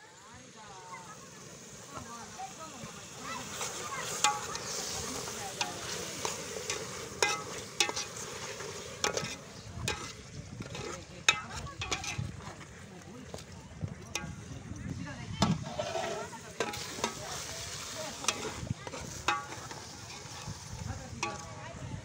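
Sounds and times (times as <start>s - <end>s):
food sizzling in oil: 0.0s - 12.7s, 14.1s - 22.0s
ladle clinking against pot: 6.7s - 8.1s, 9.0s - 12.3s.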